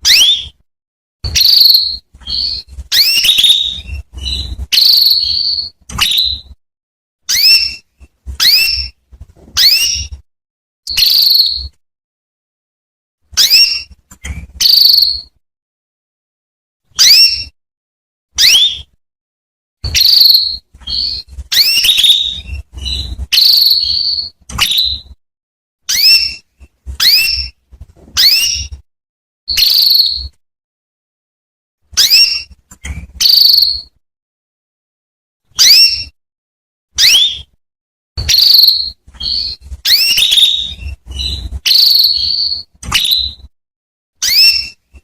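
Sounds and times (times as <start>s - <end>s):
canary calling: 0.0s - 0.6s, 1.2s - 6.6s, 7.3s - 9.0s, 9.6s - 10.2s, 10.9s - 11.7s, 13.4s - 13.9s, 14.5s - 15.3s, 17.0s - 17.5s, 18.4s - 18.9s, 19.8s - 25.1s, 25.9s - 26.4s, 27.0s - 27.6s, 28.2s - 28.8s, 29.5s - 30.3s, 32.0s - 33.9s, 35.6s - 36.1s, 38.2s - 43.5s, 44.2s - 44.8s.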